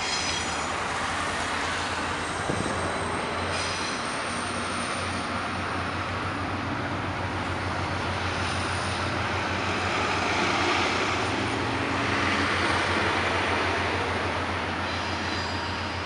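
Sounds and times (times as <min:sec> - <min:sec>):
diesel train passing: 0:00.0 - 0:16.0
street traffic: 0:00.0 - 0:16.0.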